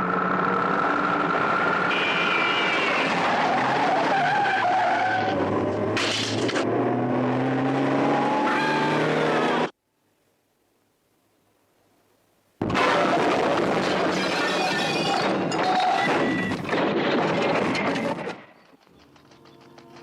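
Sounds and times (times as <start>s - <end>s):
car engines revving: 0.0s - 9.8s
tyres skidding: 0.2s - 9.7s.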